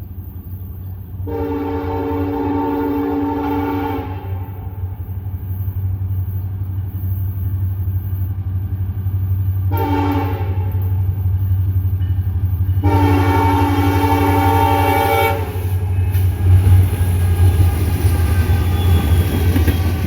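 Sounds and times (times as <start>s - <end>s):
diesel locomotive engine drone: 0.0s - 20.0s
train air horn blasts: 1.2s - 4.9s, 9.7s - 11.1s, 12.8s - 20.0s.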